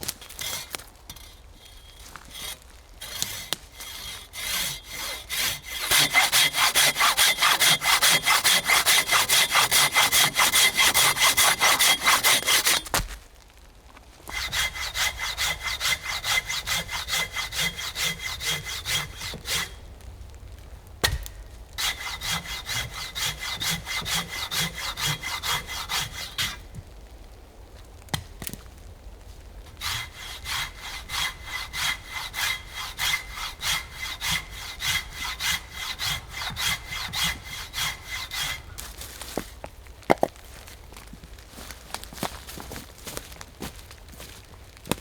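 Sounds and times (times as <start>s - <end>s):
hand saw cutting wood: 0.1s - 13.2s, 14.3s - 19.8s, 21.0s - 26.6s, 29.7s - 39.5s.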